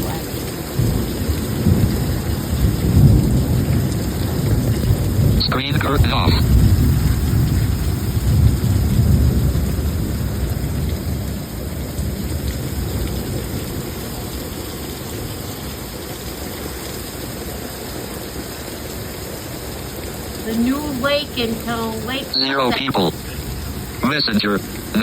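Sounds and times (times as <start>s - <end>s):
heavy rain pouring: 0.0s - 25.0s
low rumble of thunder: 0.5s - 15.4s.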